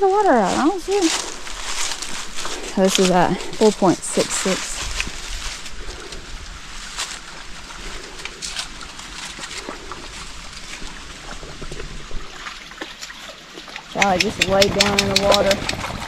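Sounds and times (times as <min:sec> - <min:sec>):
stream flowing over rocks: 0:06.4 - 0:16.0.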